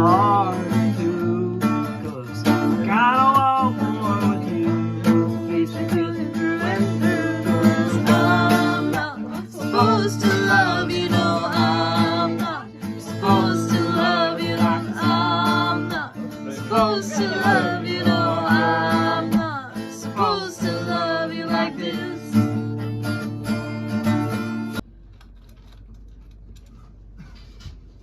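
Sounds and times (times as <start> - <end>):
person singing: 0.0 - 22.4
strummed acoustic guitar: 0.0 - 24.8.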